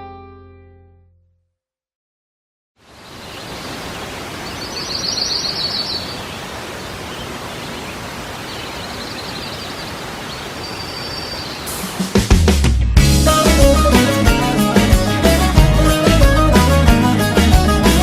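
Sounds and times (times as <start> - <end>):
rushing outdoor ambience: 2.8 - 12.6
bird chirping: 3.0 - 12.1.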